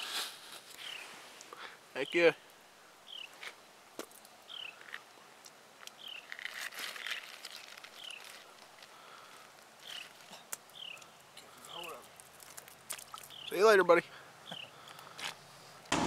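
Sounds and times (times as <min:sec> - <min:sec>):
rustling and scuffing: 0:00.0 - 0:01.4.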